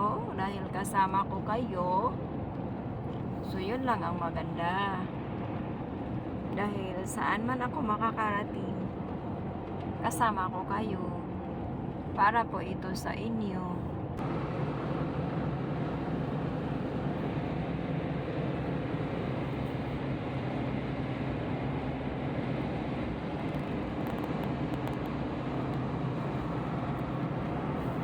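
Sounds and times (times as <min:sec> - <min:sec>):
road noise inside car: 0:00.0 - 0:28.0
car engine hum: 0:14.0 - 0:28.0.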